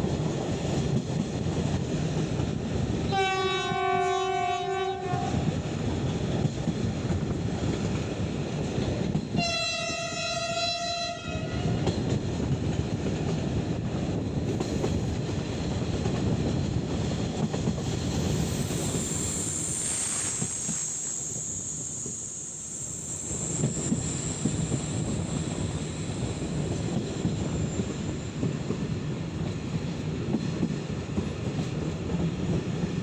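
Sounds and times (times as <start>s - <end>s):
train rumble and wheel clatter: 0.0s - 33.0s
locomotive horn blasts: 3.1s - 5.4s, 9.4s - 11.8s
faint high-pitched squeal: 18.0s - 28.3s.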